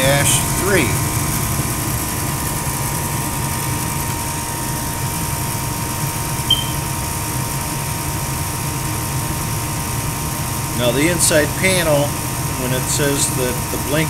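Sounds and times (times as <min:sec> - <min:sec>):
furnace fans humming: 0:00.0 - 0:14.0
small squeak: 0:06.5 - 0:06.9.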